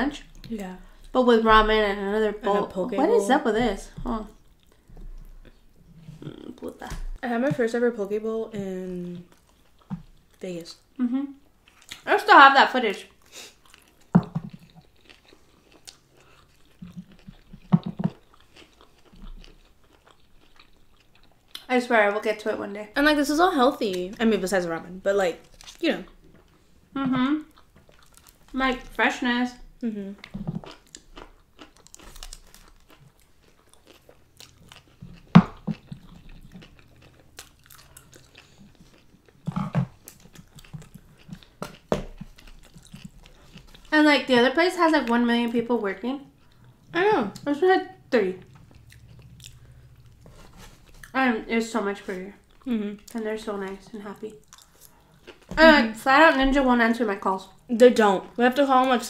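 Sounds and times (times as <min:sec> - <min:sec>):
people chewing food: 0:00.0 - 0:59.0
chewing and wet mouth smacks: 0:11.6 - 0:12.1, 0:13.1 - 0:21.7, 0:30.2 - 0:43.9, 0:48.4 - 0:51.2, 0:54.4 - 0:55.6.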